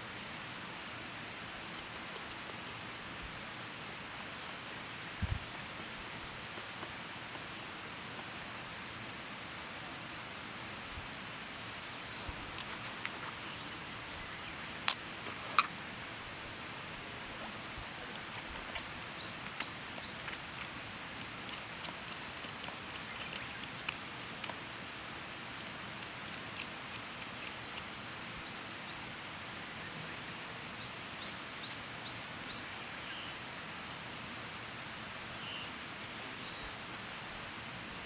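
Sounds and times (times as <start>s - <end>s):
outdoor hiss: 0.0s - 38.0s
bird chirping: 9.4s - 29.2s.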